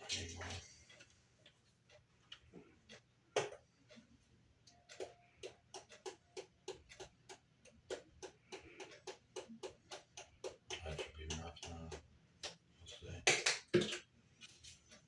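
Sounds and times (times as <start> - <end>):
utensils tapping against bowl: 5.8 - 12.6.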